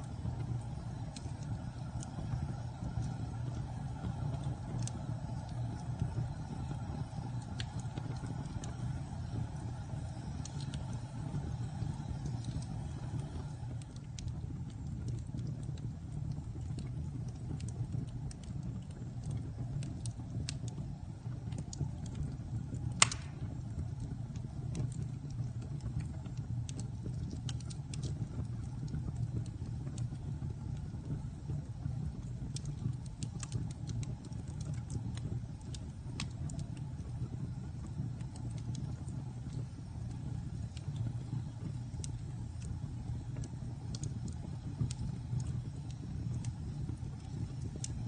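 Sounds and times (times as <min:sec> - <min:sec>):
fire crackles: 0:00.0 - 0:48.0
fire low rumble: 0:00.0 - 0:48.0
loud fire pop: 0:23.0 - 0:23.6.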